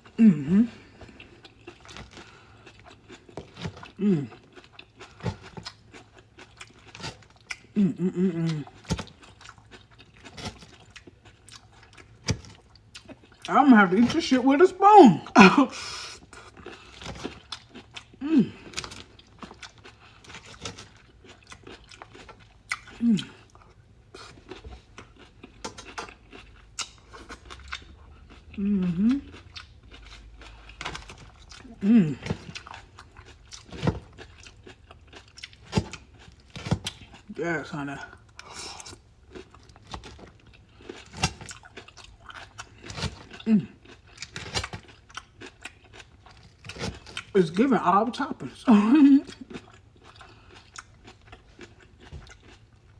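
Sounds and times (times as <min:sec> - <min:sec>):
crunching and chewing salad: 0:00.0 - 0:52.9.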